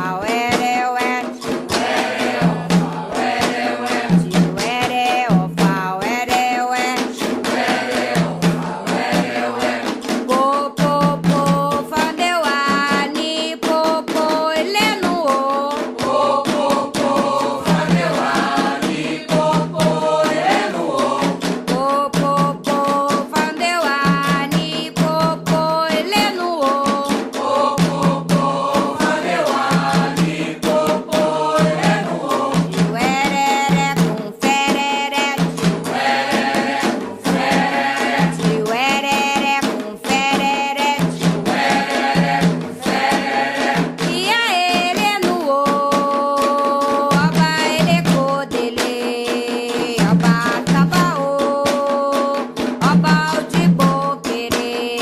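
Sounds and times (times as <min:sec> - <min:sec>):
hand drums and percussion: 0:00.0 - 0:55.0
group of voices chanting: 0:01.6 - 0:04.5, 0:16.0 - 0:21.4, 0:27.4 - 0:32.9, 0:41.5 - 0:44.0.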